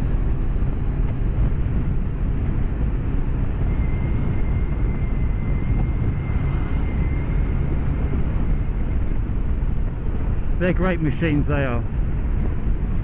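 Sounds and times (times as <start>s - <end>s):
wind and road noise: 0.0s - 13.0s
faint high whine: 2.7s - 12.8s.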